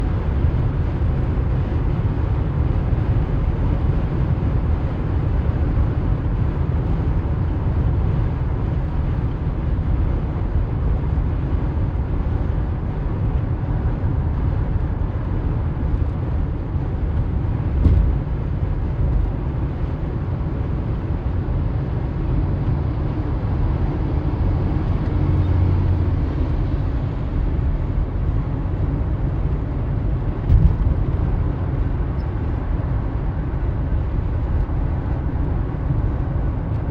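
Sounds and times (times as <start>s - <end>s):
heavy vehicle engine rumbling: 0.0s - 36.9s
single knock: 17.8s - 18.2s.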